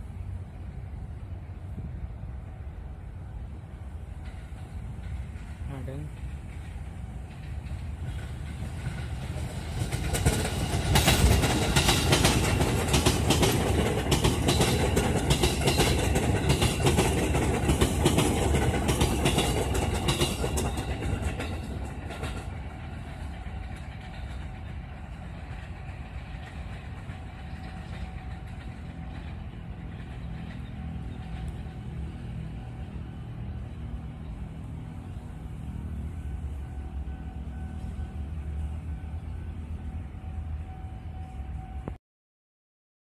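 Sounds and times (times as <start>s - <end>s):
electric train passing: 0.0s - 42.0s
wheels clattering over rail joints: 4.2s - 32.5s.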